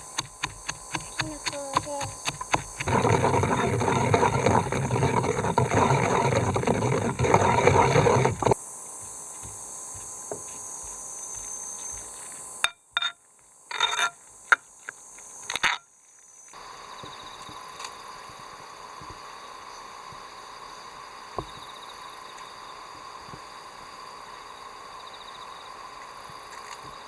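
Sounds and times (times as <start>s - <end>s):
loud continuous scraping: 0.0s - 8.6s.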